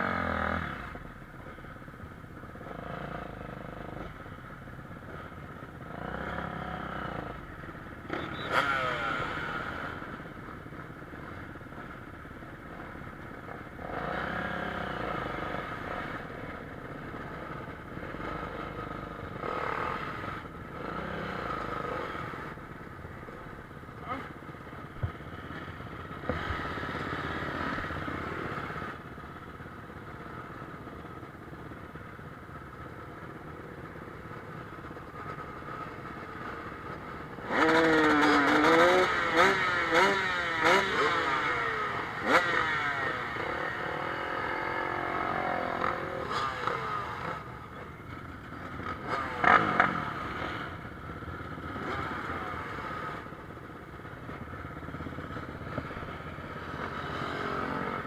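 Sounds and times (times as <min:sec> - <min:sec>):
motocross bike engines revving: 0:05.8 - 0:10.4, 0:12.7 - 0:16.4, 0:17.1 - 0:22.6, 0:23.3 - 0:29.0, 0:36.1 - 0:58.0.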